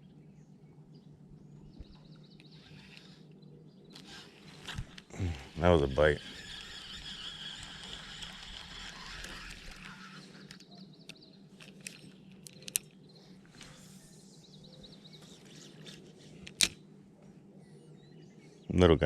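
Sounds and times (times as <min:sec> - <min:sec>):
low steady hum: 0:00.0 - 0:19.0
faint bird trills: 0:01.5 - 0:16.4
small clicks: 0:02.4 - 0:05.1, 0:06.4 - 0:13.8.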